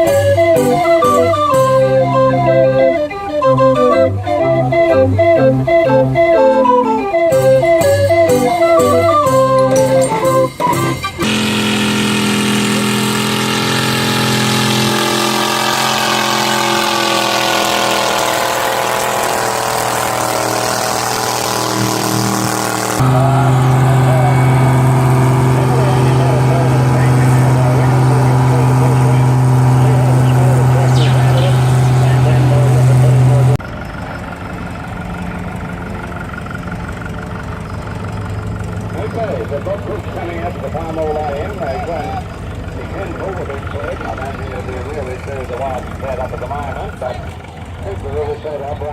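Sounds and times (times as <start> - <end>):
engine humming: 0.0 - 48.9
high whine falling in pitch: 11.2 - 33.6.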